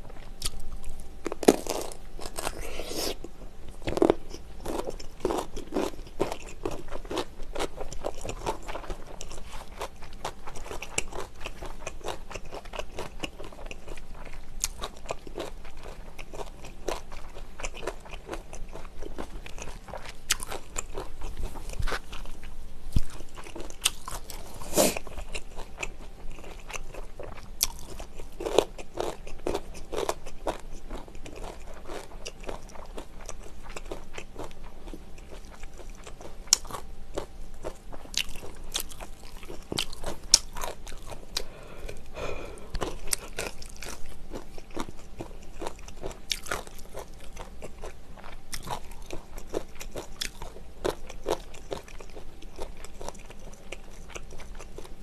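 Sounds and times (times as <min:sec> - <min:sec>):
crunchy chewing: 0:00.0 - 0:55.0.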